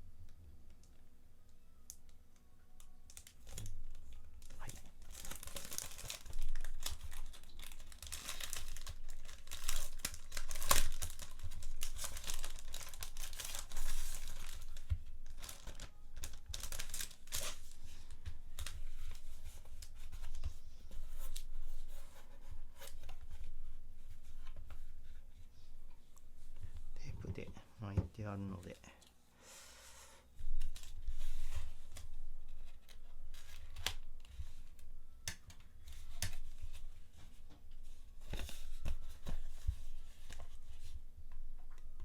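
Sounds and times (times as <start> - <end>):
packaging tearing and crinkling: 3.1 - 17.8.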